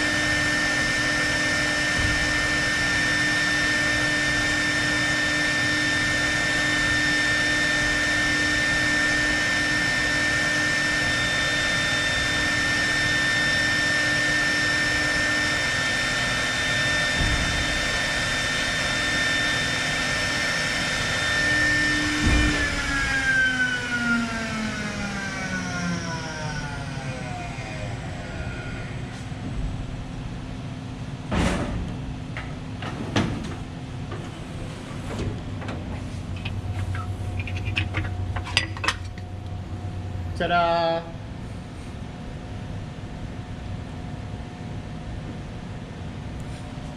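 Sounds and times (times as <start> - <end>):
router spindle whining: 0.0 - 29.4.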